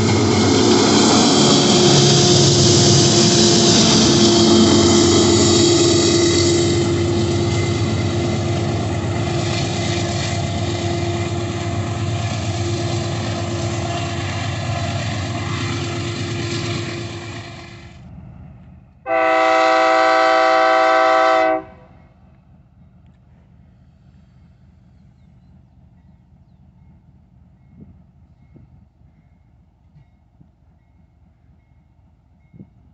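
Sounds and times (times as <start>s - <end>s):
locomotive horn blast: 0.0s - 9.4s, 19.1s - 22.0s
train running: 0.0s - 32.9s.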